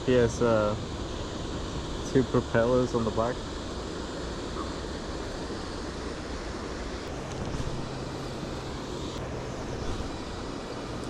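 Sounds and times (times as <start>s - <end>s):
low steady hum: 0.0s - 11.0s
wind on microphone: 6.6s - 11.0s.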